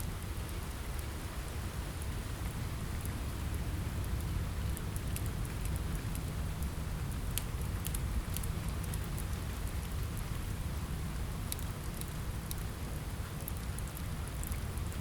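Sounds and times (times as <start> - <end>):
rain falling: 0.0 - 15.0
wood fire crackling: 0.0 - 15.0.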